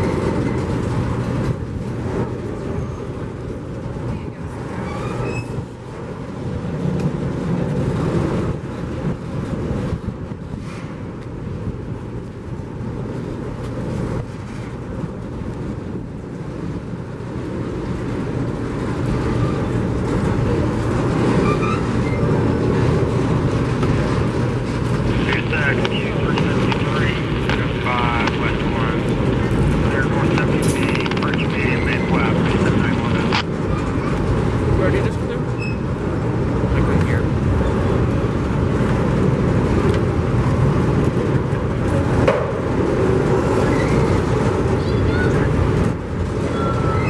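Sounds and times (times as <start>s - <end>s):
train rumbling by: 0.0s - 47.0s
engine hum: 5.6s - 47.0s.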